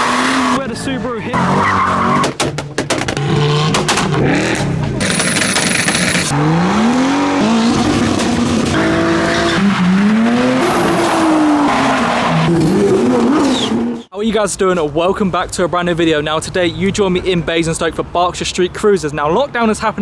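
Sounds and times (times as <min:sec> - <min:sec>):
car engines revving and accelerating: 0:00.0 - 0:02.2, 0:03.1 - 0:14.1.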